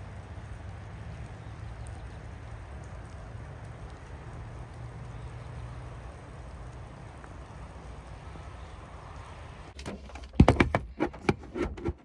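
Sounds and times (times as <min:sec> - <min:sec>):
rain falling on trees: 0:00.0 - 0:10.6.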